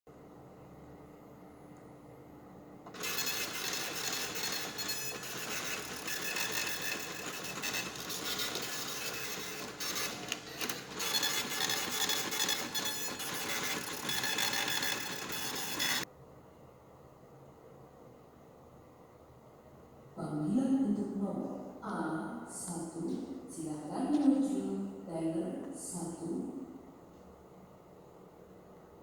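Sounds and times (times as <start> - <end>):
ticket printer whirring: 2.9 - 16.1.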